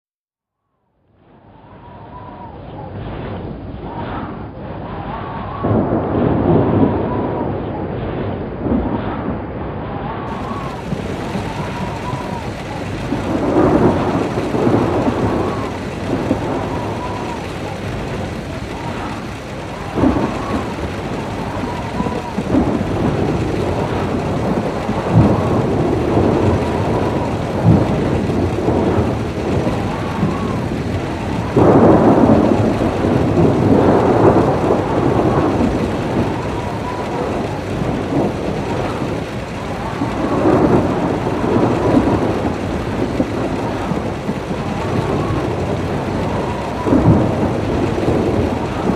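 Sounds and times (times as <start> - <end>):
rolling thunder: 4.9 - 48.9
sharp thunder cracks: 5.6 - 7.6, 10.2 - 48.9
steady rain: 10.3 - 48.9.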